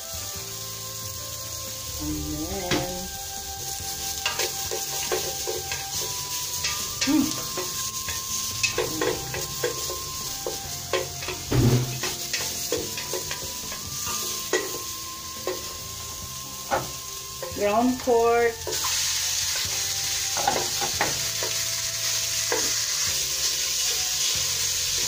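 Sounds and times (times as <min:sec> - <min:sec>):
onion and garlic sizzling in oil: 0:00.0 - 0:25.0
spatula scraping and knocking pot: 0:04.2 - 0:15.8.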